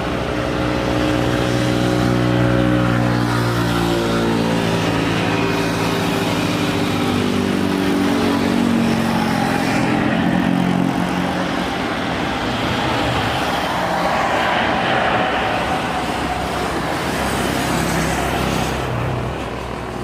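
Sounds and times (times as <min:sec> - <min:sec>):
road noise rush: 0:00.0 - 0:20.0
vehicle engine passing: 0:03.8 - 0:19.0.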